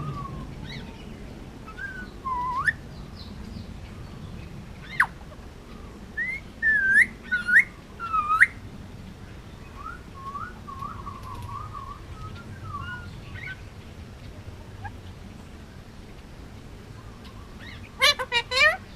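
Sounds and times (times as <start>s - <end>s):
parakeet warbling chatter: 17.6s - 18.9s.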